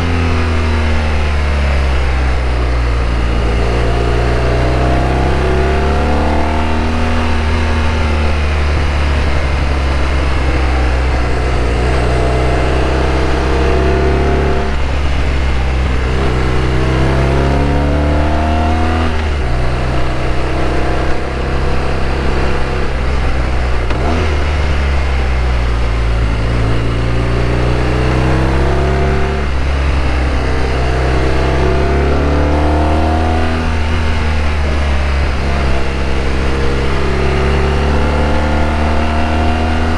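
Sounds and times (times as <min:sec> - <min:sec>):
motorcycle engine revving: 0:00.0 - 0:39.9
wind and road noise: 0:00.0 - 0:39.9.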